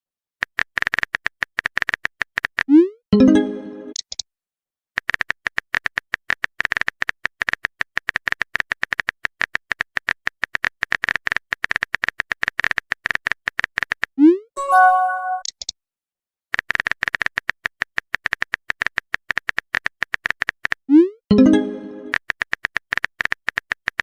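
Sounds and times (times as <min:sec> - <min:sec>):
message tone: 0:03.2 - 0:04.0, 0:14.6 - 0:15.5, 0:21.3 - 0:22.1
chime: 0:14.6 - 0:15.4.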